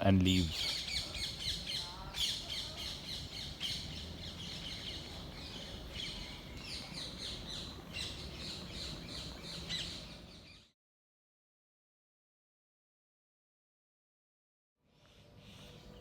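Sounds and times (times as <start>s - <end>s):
small birds chirping: 0.0s - 10.7s, 14.9s - 16.0s.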